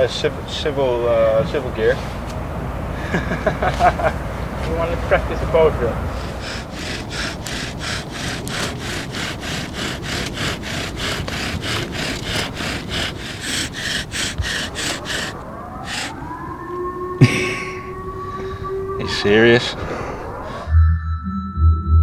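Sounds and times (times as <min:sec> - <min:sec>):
bow drill spindle rasping: 0:06.2 - 0:16.3.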